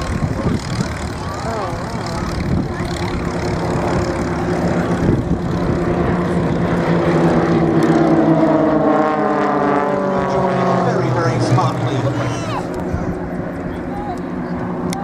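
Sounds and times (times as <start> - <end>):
propeller planes droning: 0.0 - 15.0.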